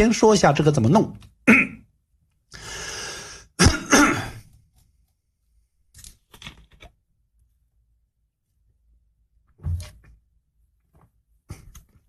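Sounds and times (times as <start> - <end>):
man clearing throat: 1.5 - 1.9, 3.6 - 4.4
man breathing in: 2.5 - 3.6.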